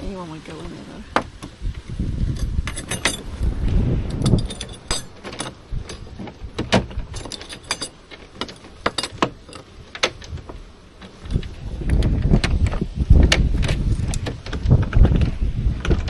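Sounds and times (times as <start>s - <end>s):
wind buffeting microphone: 0.0s - 16.0s
keys jangling: 2.4s - 3.3s, 4.2s - 6.1s, 7.1s - 9.7s.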